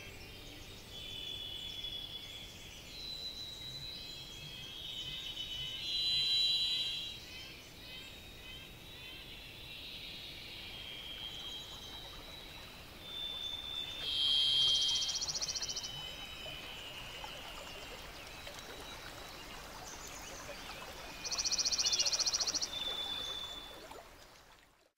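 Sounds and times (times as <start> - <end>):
high whistled bird notes: 5.1 - 7.2, 10.7 - 17.7
buzzy bird trill: 13.2 - 17.6.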